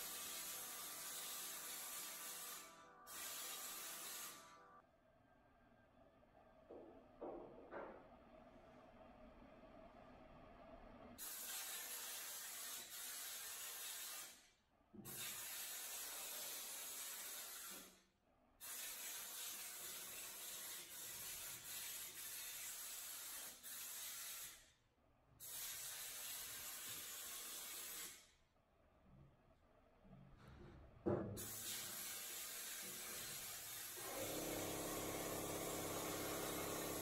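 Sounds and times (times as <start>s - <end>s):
hiss of spray: 0.0s - 4.5s, 11.2s - 14.5s, 15.1s - 18.0s, 18.6s - 24.7s, 25.4s - 28.3s, 31.4s - 37.0s.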